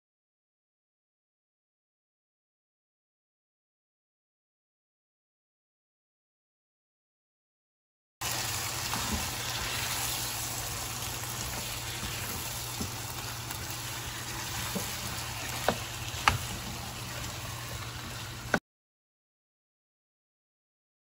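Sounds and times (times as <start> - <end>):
chicken and vegetables sizzling: 8.2 - 18.6.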